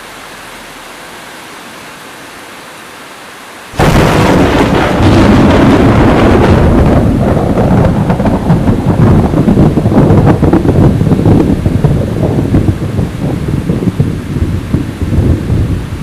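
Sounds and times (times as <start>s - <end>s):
heavy rain: 0.0s - 16.0s
thunder rumbling: 3.7s - 16.0s.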